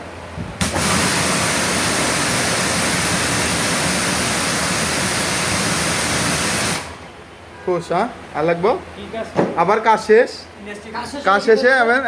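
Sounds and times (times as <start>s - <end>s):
pressure washer spraying: 0.6s - 7.1s.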